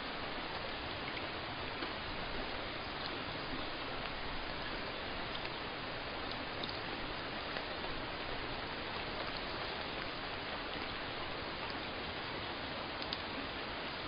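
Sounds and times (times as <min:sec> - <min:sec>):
steady rain hiss: 0:00.0 - 0:14.0
faint droplet ticks: 0:02.8 - 0:05.6, 0:06.2 - 0:07.8, 0:13.0 - 0:13.3.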